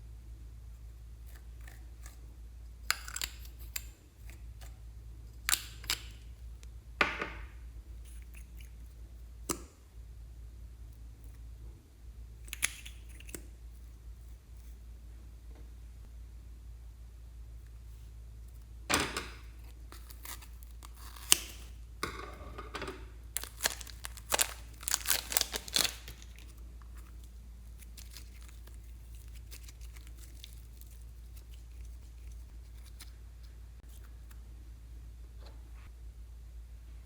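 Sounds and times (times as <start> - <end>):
slime crackling and popping: 23.4 - 32.0.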